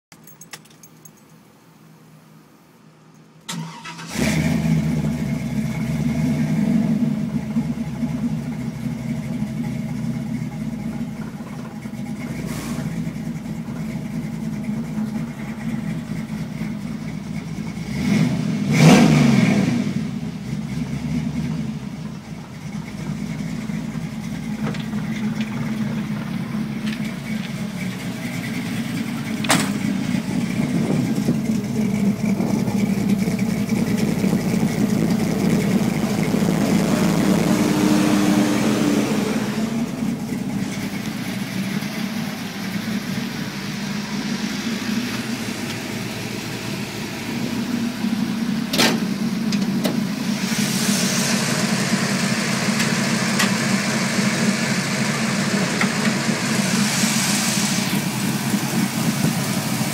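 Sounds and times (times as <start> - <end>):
car engine idling: 0.1 - 59.9
engine throttle blip: 22.0 - 54.2.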